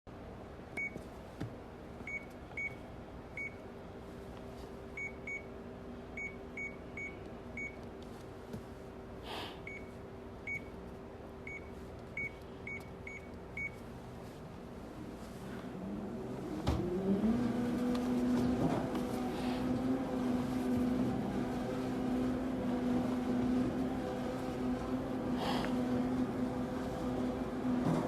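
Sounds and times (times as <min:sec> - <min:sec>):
steady low hum: 0:17.4 - 0:28.0.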